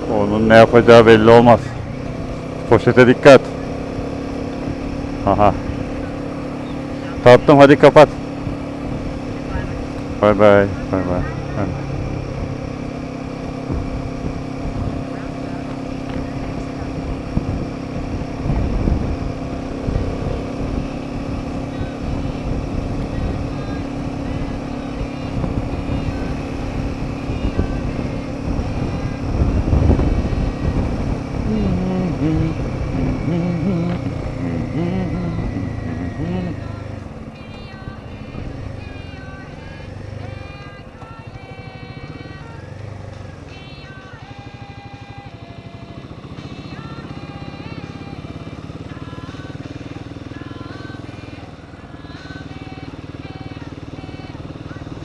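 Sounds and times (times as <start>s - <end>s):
motorcycle engine cruising: 0.0s - 55.0s
wind rush: 27.1s - 31.5s.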